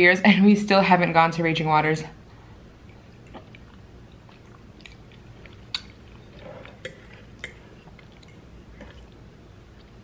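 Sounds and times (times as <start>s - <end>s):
chewing spaghetti: 2.8s - 10.0s.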